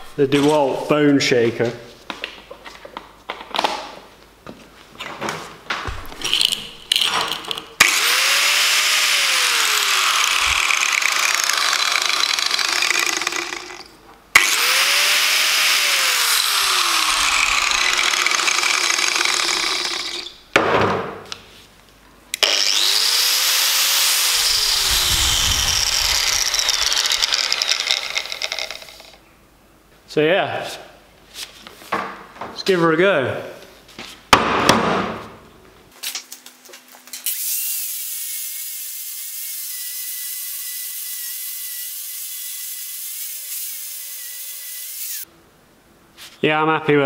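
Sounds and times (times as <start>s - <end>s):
angle grinder whining: 7.8s - 20.4s, 22.4s - 29.2s, 37.2s - 45.3s.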